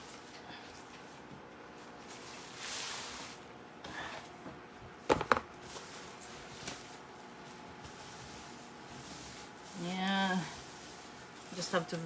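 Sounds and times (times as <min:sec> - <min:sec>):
rubbing and brushing handling noises: 0:00.0 - 0:03.5, 0:05.6 - 0:12.0.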